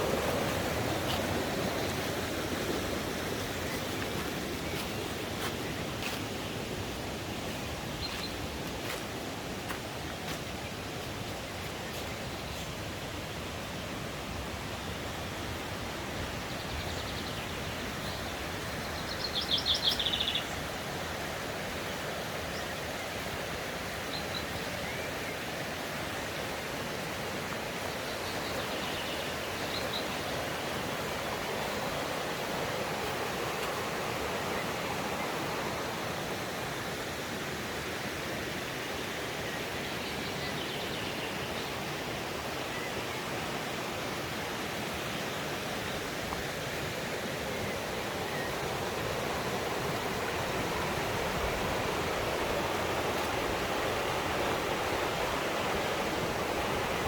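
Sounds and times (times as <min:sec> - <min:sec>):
songbirds calling: 0:00.0 - 0:36.9, 0:38.8 - 0:57.0
mountain stream rushing: 0:00.0 - 0:57.0.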